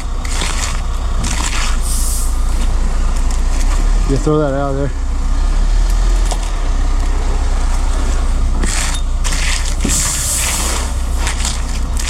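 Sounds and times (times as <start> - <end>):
concrete scraping: 0.0 - 4.2, 8.6 - 12.0
concrete truck diesel rumble: 0.0 - 12.0.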